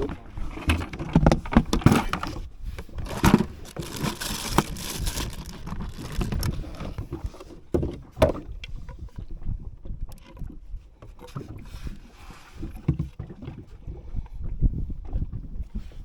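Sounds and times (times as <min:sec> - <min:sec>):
scraping and rustling handling: 0:00.0 - 0:08.1
knocks on boat: 0:06.9 - 0:08.6.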